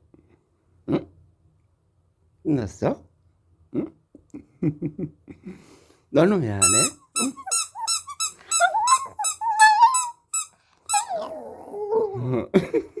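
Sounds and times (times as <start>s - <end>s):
dog whining and yipping: 6.7s - 12.2s
dog howl-like whine: 8.6s - 10.2s, 10.9s - 12.2s.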